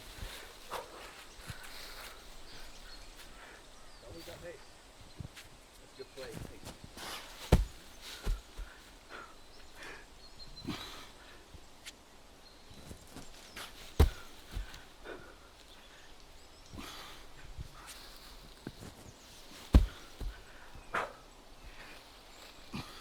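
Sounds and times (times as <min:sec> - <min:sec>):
heavy object dropped thuds: 0:06.4 - 0:08.8, 0:13.2 - 0:14.8, 0:19.6 - 0:20.6
strained breathing: 0:06.9 - 0:11.6, 0:13.6 - 0:23.0.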